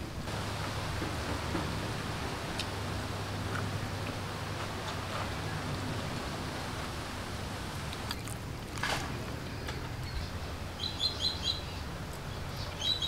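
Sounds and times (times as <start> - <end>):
low background hum: 0.0 - 13.0
small bird chirping: 9.6 - 13.0.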